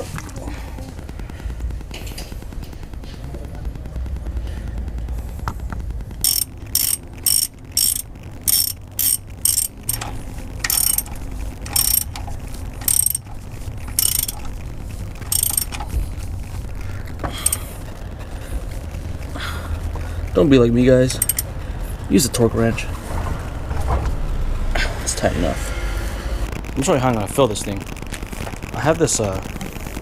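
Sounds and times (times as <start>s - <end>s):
socket ratchet clicking: 6.2s - 13.3s, 13.9s - 14.5s, 15.2s - 15.9s, 21.2s - 21.5s.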